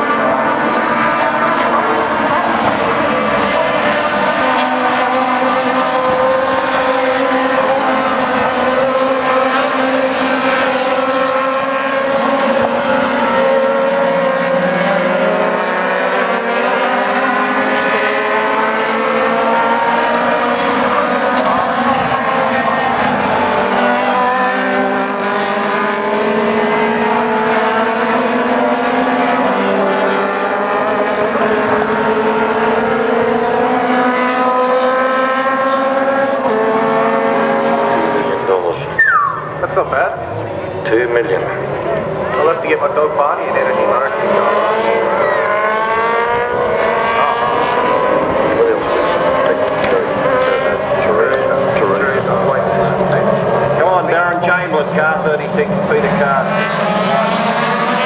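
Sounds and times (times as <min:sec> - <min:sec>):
racing car engines at high revs: 0:00.0 - 0:58.0.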